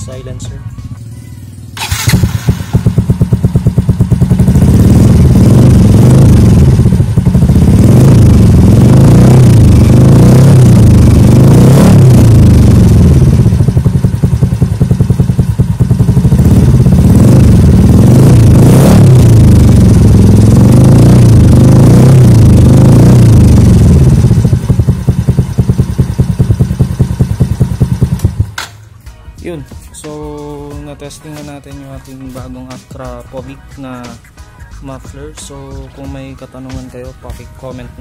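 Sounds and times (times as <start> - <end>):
scooter engine revving: 0.9 - 28.6.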